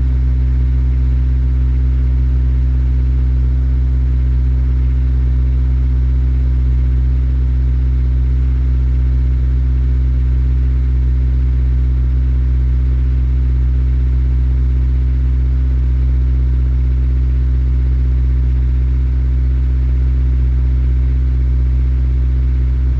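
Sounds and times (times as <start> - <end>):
car engine idling: 9.7 - 22.9.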